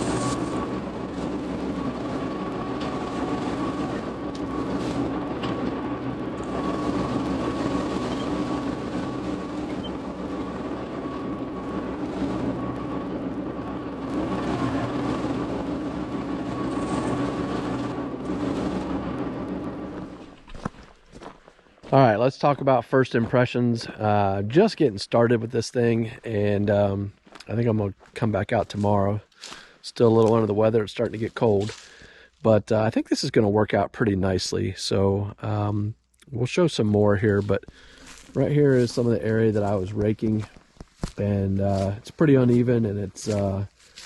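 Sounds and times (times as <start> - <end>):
tractor diesel engine clattering: 0.0 - 20.4.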